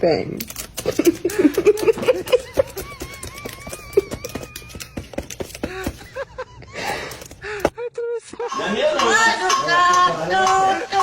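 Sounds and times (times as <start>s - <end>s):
parrot clicking: 0.4s - 6.0s.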